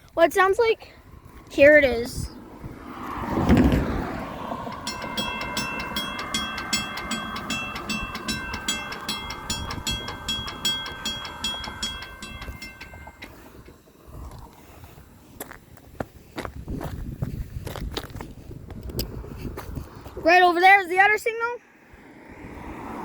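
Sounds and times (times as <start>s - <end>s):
railroad crossing bell ringing: 4.3s - 13.9s.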